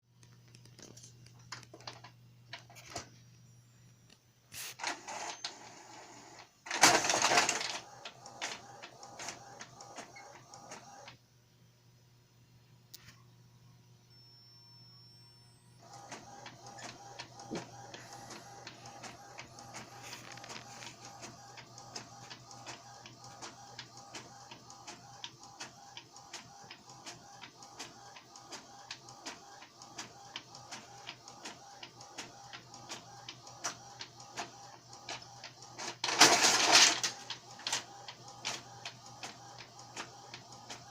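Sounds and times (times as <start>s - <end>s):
printer motor running: 4.8s - 11.1s, 15.8s - 40.9s
printer clicks: 6.7s - 11.2s, 15.8s - 40.9s.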